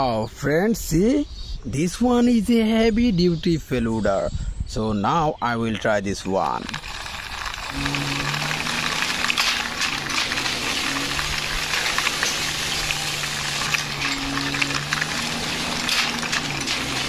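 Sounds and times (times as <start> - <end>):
toy wheels scraping over concrete: 6.1 - 17.0.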